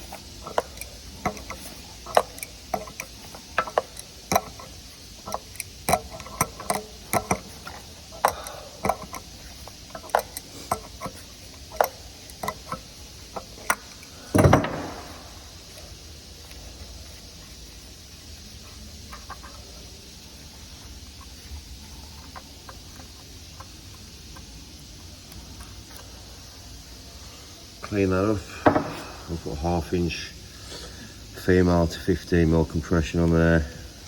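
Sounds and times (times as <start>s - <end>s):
hand tools clicking on pipe fittings: 0.0s - 20.2s, 21.0s - 26.1s
loud thump: 28.6s - 29.2s.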